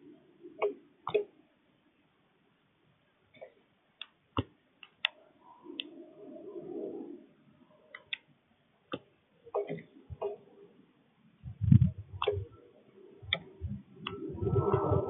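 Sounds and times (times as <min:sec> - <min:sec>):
soft low cooing: 0:11.5 - 0:15.0.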